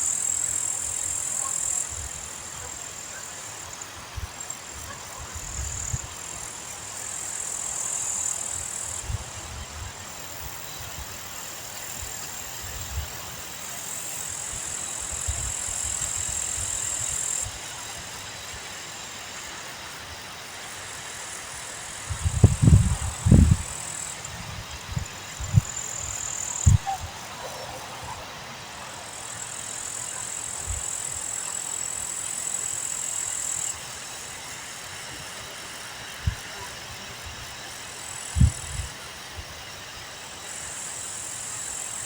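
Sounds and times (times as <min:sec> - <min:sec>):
high-pitched hiss: 0:00.0 - 0:42.0
wind buffeting microphone: 0:22.1 - 0:25.9, 0:26.6 - 0:27.2, 0:38.3 - 0:39.0.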